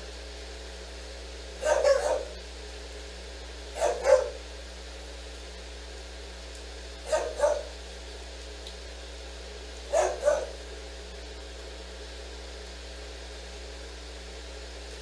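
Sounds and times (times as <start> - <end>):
dog barking: 1.6 - 2.4, 3.8 - 4.4, 7.0 - 7.8, 9.9 - 10.6.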